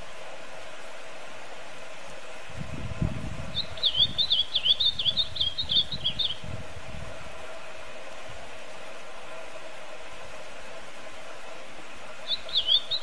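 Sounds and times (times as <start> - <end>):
steady hiss: 0.0 - 13.0
songbird singing: 3.5 - 6.5, 12.1 - 13.0.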